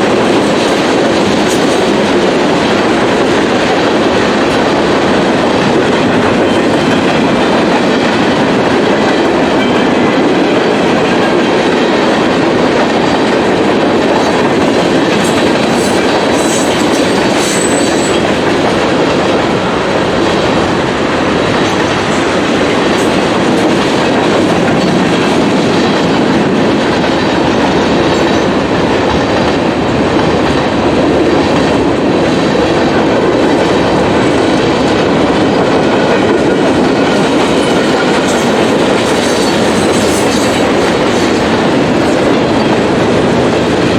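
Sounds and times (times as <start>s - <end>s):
freight train rumbling past: 0.0s - 43.9s
high wheel squeals: 15.7s - 18.3s.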